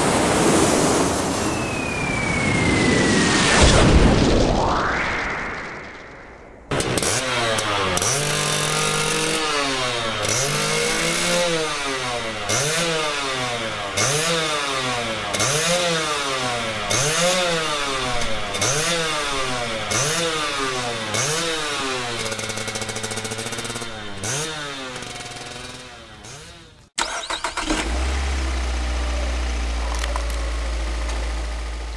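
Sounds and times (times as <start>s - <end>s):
vehicle engine revving: 6.8s - 31.9s.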